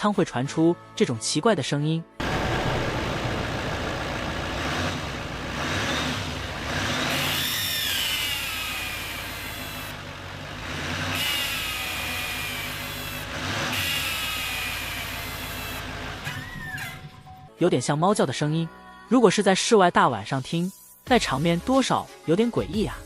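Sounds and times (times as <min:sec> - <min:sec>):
high squealing whine: 0:02.2 - 0:10.2, 0:11.0 - 0:17.0
pickup engine revving: 0:02.2 - 0:16.3.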